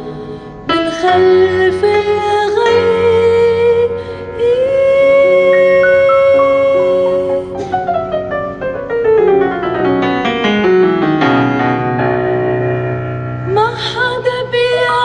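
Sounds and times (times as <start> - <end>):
piano keyboard playing: 5.4 - 13.0.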